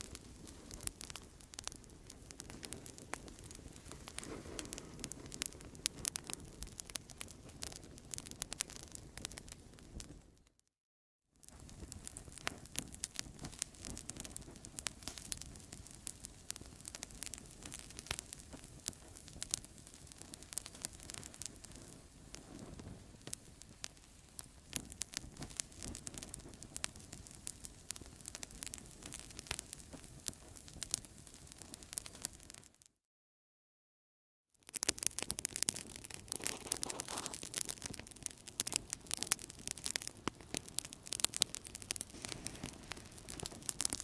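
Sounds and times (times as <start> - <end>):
campfire crackling: 0.0 - 10.3, 11.4 - 32.8, 34.7 - 44.0
soft steady hiss: 42.1 - 44.0.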